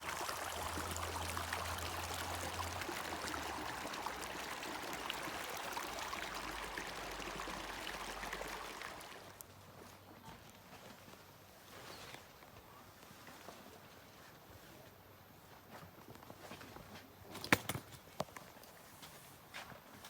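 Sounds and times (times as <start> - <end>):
running water rushing: 0.0 - 9.4.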